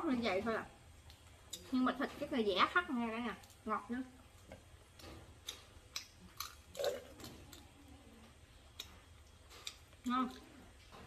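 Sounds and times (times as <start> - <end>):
person chewing with mouth clicks: 8.7 - 10.6.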